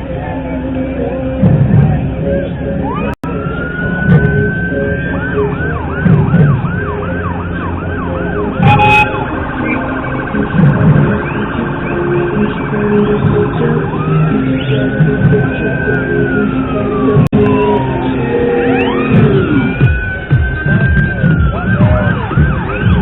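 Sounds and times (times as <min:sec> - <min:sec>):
emergency vehicle siren: 0:01.8 - 0:23.0
loud horn blast: 0:08.6 - 0:09.4.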